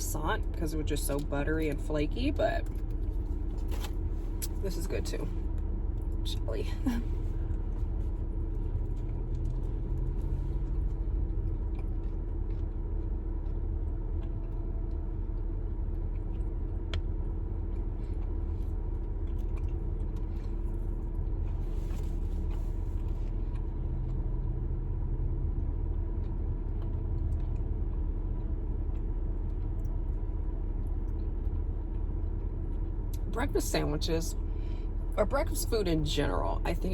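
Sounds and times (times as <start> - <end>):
car engine rumble inside cabin: 0.0 - 36.9
chewing clicks: 7.4 - 24.8, 25.5 - 33.3.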